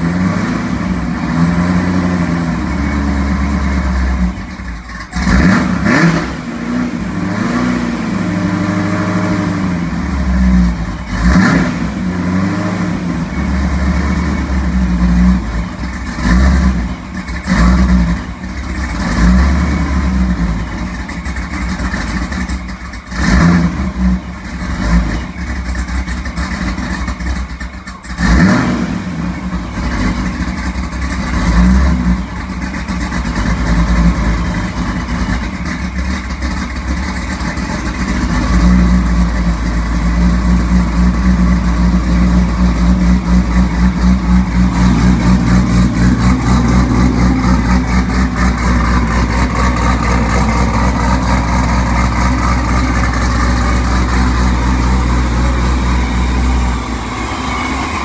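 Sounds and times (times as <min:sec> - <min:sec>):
car engine revving and loping idle: 0:00.0 - 0:58.0.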